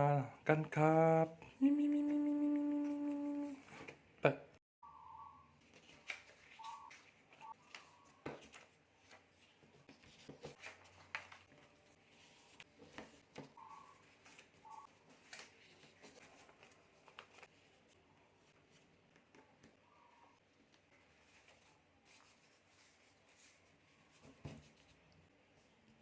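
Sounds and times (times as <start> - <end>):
paper being folded: 5.6 - 13.3, 13.9 - 19.2.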